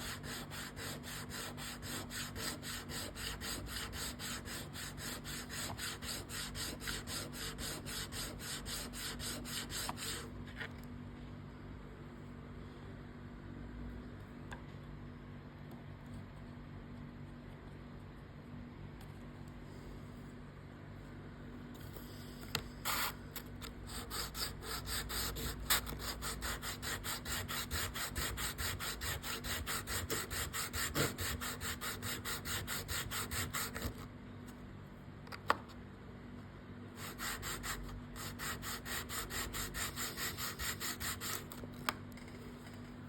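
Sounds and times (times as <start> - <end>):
sanding rasp on sandpaper: 0.0 - 10.3, 23.9 - 34.0, 37.0 - 41.6.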